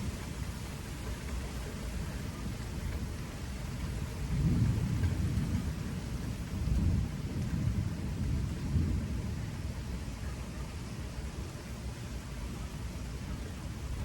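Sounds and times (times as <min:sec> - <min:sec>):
rain hissing: 0:00.0 - 0:14.0
thunder rumbling: 0:00.0 - 0:14.0.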